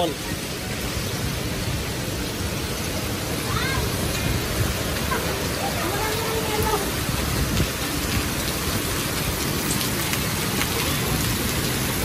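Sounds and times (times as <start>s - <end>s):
heavy rain: 0.0s - 12.0s
hail ticking on stone: 3.4s - 12.0s.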